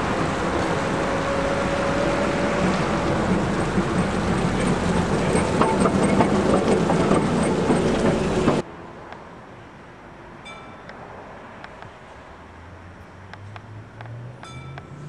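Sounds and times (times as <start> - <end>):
tram wheels rattling over rails: 0.0 - 8.6.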